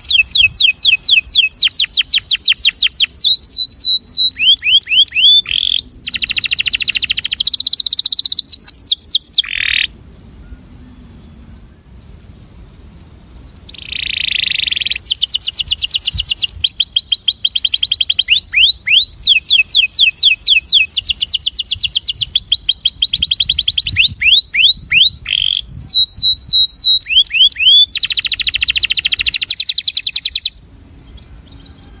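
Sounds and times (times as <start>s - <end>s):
canary singing: 0.0s - 10.9s, 11.6s - 32.0s
steady high hiss: 6.0s - 24.0s.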